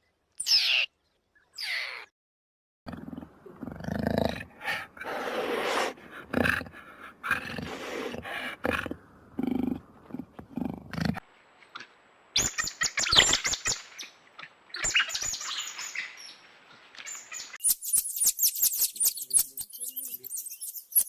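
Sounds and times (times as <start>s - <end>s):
animal low calls: 2.9s - 11.2s.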